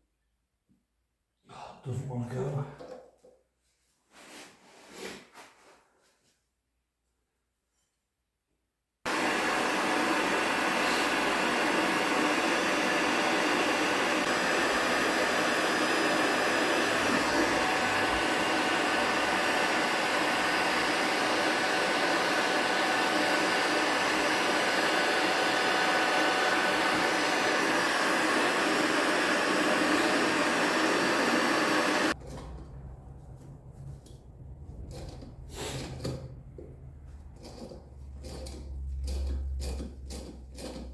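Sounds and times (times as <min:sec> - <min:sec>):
heat gun blowing: 0:09.1 - 0:32.2.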